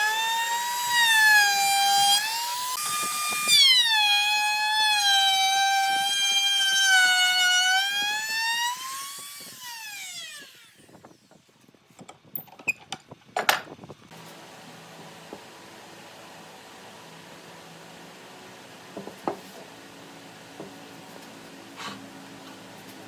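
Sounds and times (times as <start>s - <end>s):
electric power tool whining: 0.0s - 11.3s.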